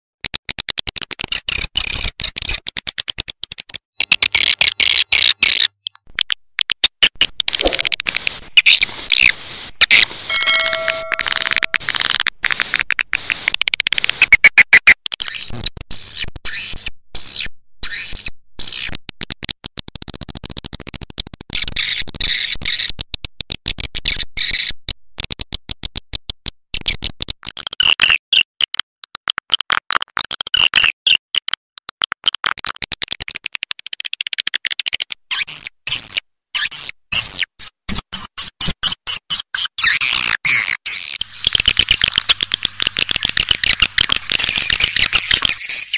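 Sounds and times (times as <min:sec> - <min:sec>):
swiftlets chirping: 0:41.2 - 0:45.9.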